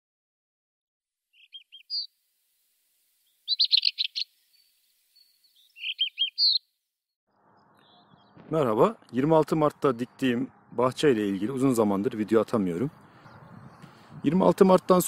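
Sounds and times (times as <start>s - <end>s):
small songbird singing: 1.3s - 2.2s, 3.2s - 6.8s, 7.6s - 8.5s.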